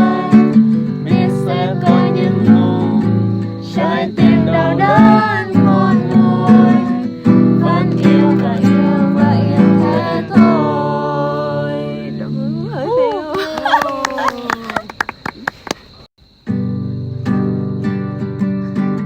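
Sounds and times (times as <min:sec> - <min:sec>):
strummed acoustic guitar: 0:00.0 - 0:12.6, 0:16.4 - 0:19.0
person singing: 0:00.0 - 0:13.3.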